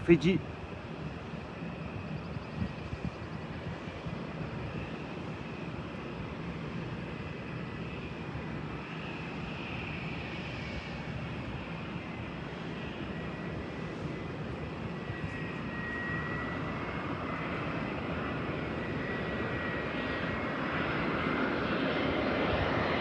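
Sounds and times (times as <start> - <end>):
faint engine whine: 0.0 - 23.0.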